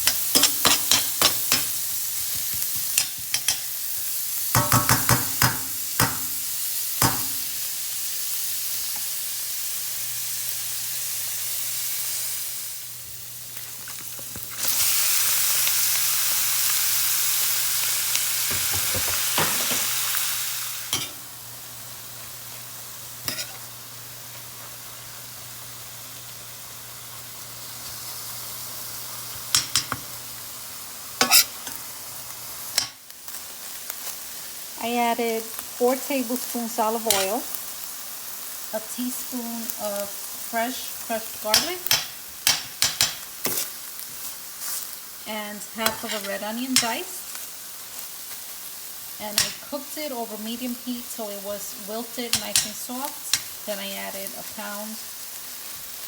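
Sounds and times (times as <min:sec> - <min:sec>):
food sizzling in a frying pan: 0:00.0 - 0:56.0
utensil scraping a pan: 0:31.2 - 0:31.8, 0:45.8 - 0:46.5.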